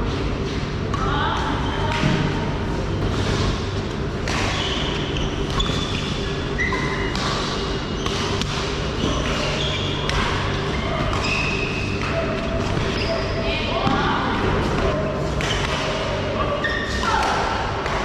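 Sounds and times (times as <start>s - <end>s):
steady low hum: 0.0s - 18.0s
racket hitting shuttlecock: 4.2s - 5.8s, 6.8s - 12.9s, 14.6s - 16.2s
shoes squeaking on court floor: 4.3s - 13.5s.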